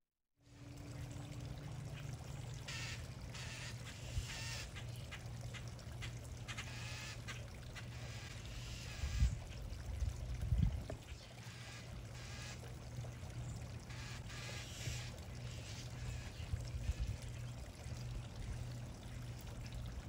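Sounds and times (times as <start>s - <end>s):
steady low hum: 0.4s - 20.0s
birds calling: 1.6s - 9.7s, 13.3s - 17.6s.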